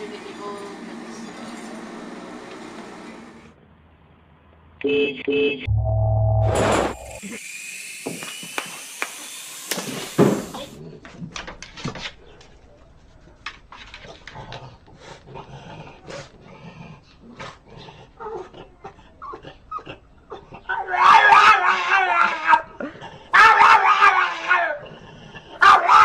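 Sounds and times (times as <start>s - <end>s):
toy drone whine: 7.0s - 10.6s.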